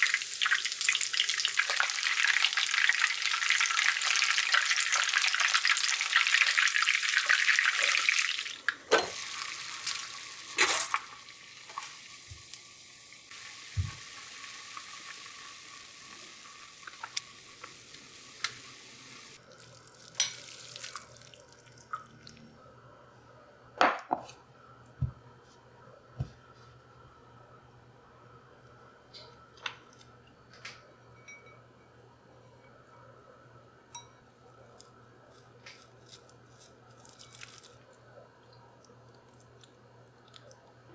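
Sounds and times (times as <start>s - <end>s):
fainter hiss: 6.7s - 21.6s
utensils and dishes clicking: 9.8s - 11.9s
loud steady hiss: 11.3s - 19.4s.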